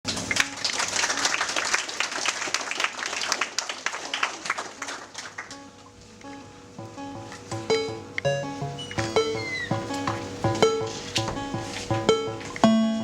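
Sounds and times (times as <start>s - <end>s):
audience applauding: 0.1s - 5.7s
short low electronic tones: 6.2s - 12.7s.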